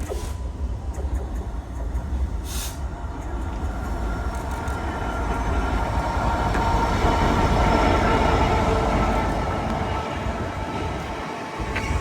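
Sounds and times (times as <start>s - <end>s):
diesel locomotive engine drone: 0.0s - 12.0s
train rail noise: 0.0s - 12.0s.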